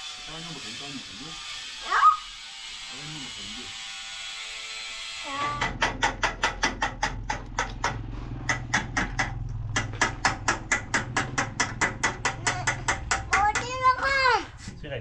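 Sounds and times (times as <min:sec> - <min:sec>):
rapid sharp knocking: 0:05.4 - 0:14.4.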